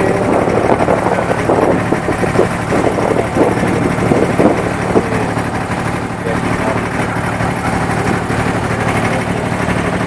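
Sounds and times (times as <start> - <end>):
people talking: 0.0 - 1.8, 2.7 - 5.5, 6.2 - 9.5
boat engine droning: 0.0 - 10.0.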